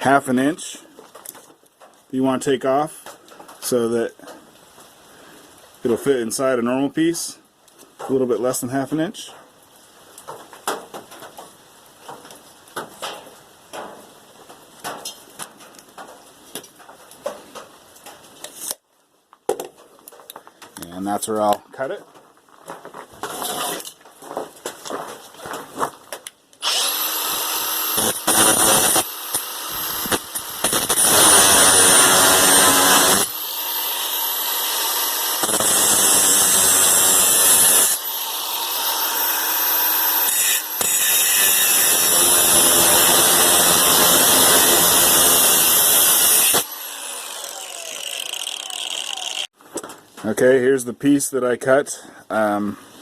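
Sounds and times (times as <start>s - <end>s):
power tool cutting metal conduit: 23.2s - 23.9s, 26.6s - 49.5s.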